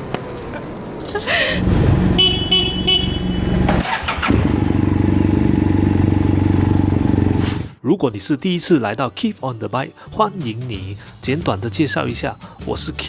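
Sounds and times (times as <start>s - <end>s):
two-stroke motorcycle engine running: 2.4s - 7.4s.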